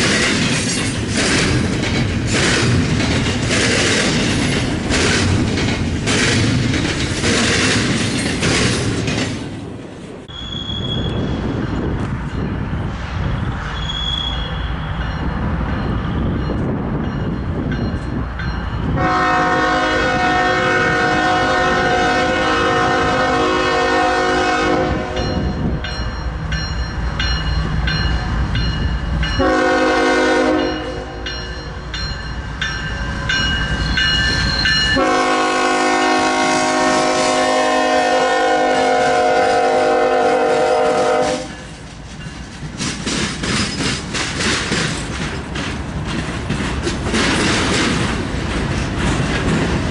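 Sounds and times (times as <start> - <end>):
wheels clickety-clack: 0.0 - 9.6, 41.0 - 49.9
train rumbling: 0.0 - 49.9
locomotive air horn blasts: 19.0 - 25.4, 29.4 - 31.2, 35.0 - 41.6.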